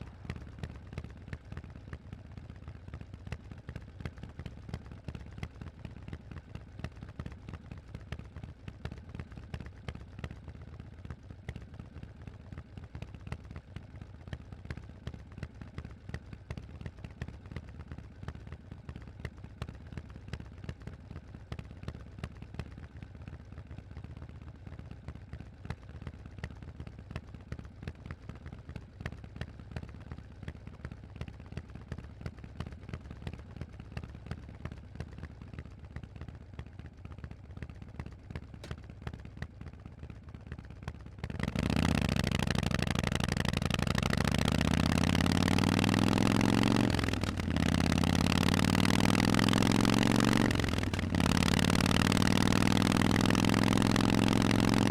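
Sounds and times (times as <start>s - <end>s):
motorcycle engine: 40.8s - 54.9s.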